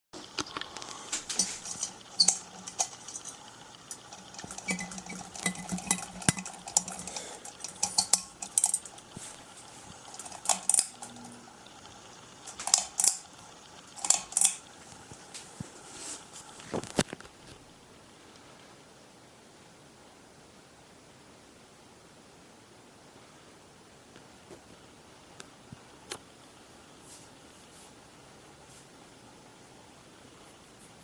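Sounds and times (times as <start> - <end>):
faint low hum: 0.2 - 31.0
ceiling fan light kit rattling: 0.4 - 16.6.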